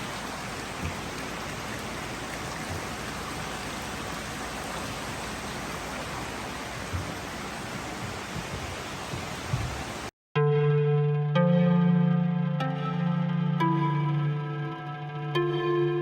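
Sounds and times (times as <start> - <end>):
running splashing water: 0.0 - 10.1
low thumps: 6.8 - 10.0.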